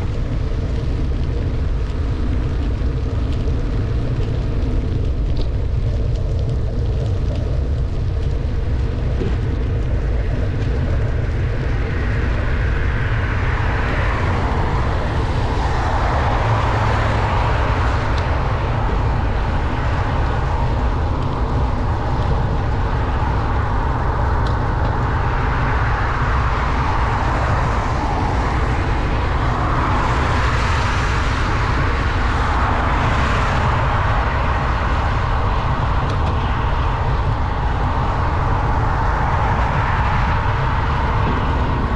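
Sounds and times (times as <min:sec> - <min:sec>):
wind on microphone: 0:00.0 - 0:41.9
vehicles passing: 0:09.2 - 0:41.9
tyres hissing on wet road: 0:11.2 - 0:41.9.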